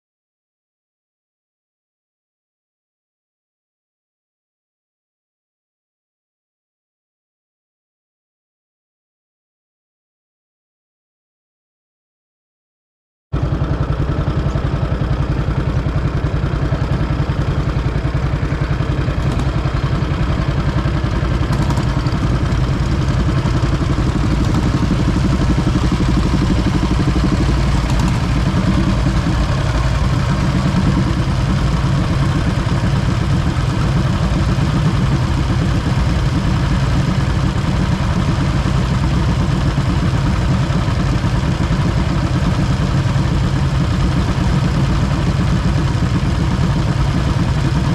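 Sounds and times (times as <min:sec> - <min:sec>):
motorcycle engine running: 0:13.4 - 0:47.9
mechanical clatter: 0:21.5 - 0:47.9.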